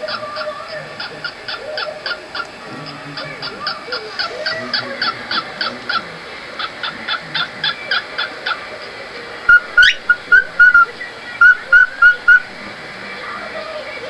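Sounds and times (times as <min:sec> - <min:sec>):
bird chirping: 0:00.0 - 0:12.6
bird whistling: 0:06.6 - 0:08.6, 0:09.5 - 0:12.6.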